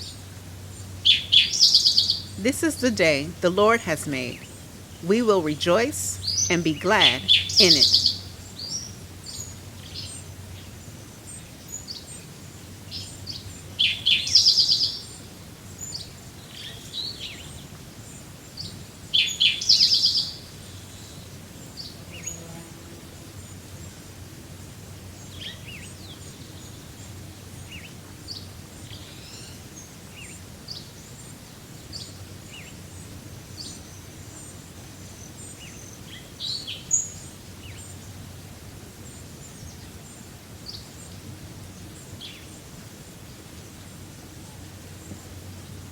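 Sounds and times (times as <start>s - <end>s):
outdoor background hiss: 0.0s - 45.9s
birds chirping: 1.1s - 8.9s
bird trilled song: 7.3s - 9.0s.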